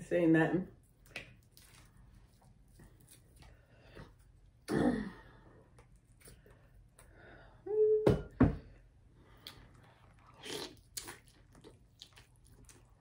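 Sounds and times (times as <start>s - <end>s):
biting and chewing lobster: 9.4s - 13.0s.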